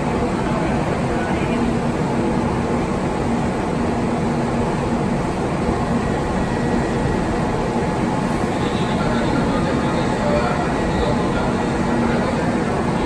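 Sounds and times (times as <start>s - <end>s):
train noise at platform: 0.0s - 13.0s.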